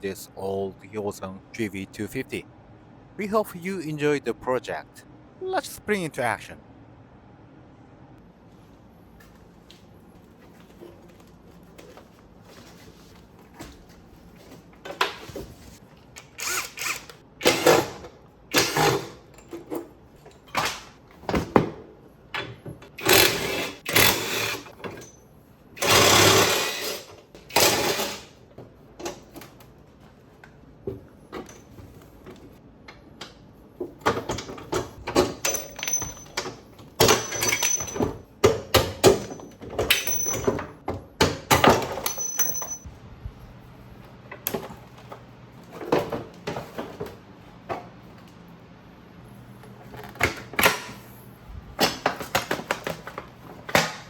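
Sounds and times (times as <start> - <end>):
power tool bursts: 16.2 - 19.1, 25.8 - 28.3
tools clanking and clicking: 34.0 - 42.9.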